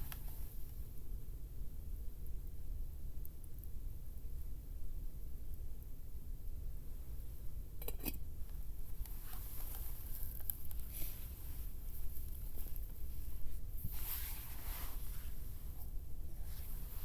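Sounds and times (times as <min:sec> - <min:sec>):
rustling: 0:08.9 - 0:17.0.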